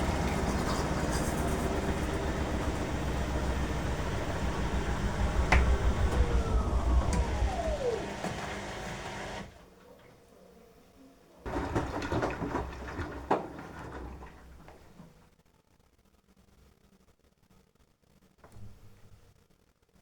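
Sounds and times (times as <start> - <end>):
water sloshing: 0.0 - 4.7
washing machine drum tumbling: 0.0 - 9.1, 11.5 - 14.5
washing machine motor whine: 0.0 - 9.7, 11.5 - 15.0.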